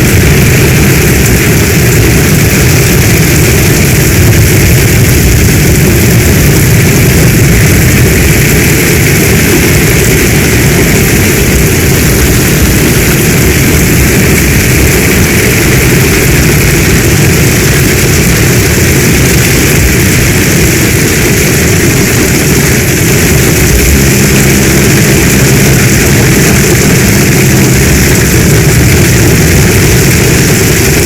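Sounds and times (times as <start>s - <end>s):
deep rumble: 0.0s - 31.0s
heavy rain falling: 0.0s - 31.0s.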